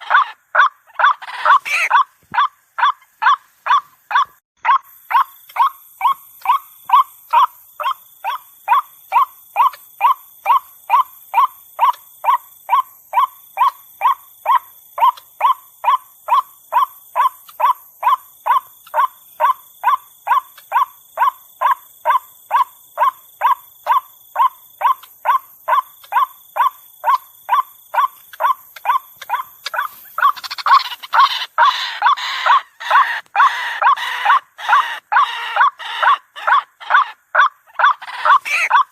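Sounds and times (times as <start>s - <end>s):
waterhen calling: 0.0s - 4.3s, 15.0s - 38.9s.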